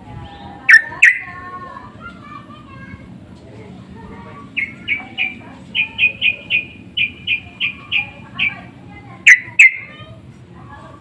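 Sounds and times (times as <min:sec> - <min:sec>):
bird chirping: 0:04.5 - 0:08.6, 0:09.2 - 0:09.9.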